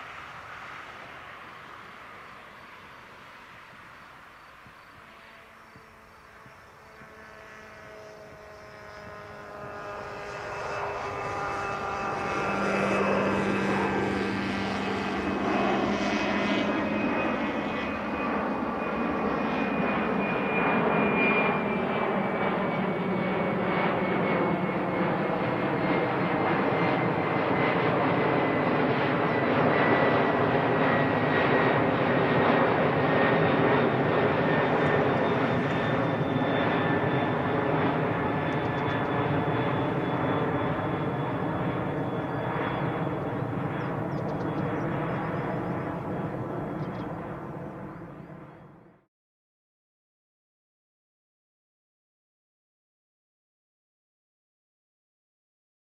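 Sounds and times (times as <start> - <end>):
jet engines spooling up: 30.2 - 48.0.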